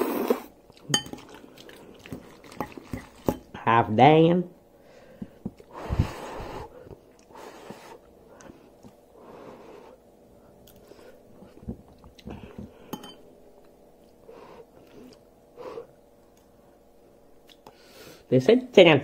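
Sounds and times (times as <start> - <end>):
person chewing noodles: 0.0 - 3.5, 5.6 - 16.6.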